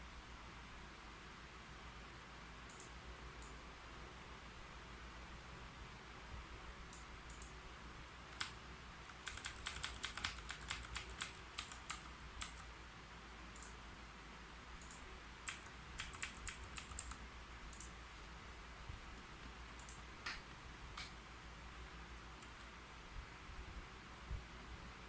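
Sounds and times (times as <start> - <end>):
typing on a keyboard: 8.3 - 12.7, 14.8 - 17.2.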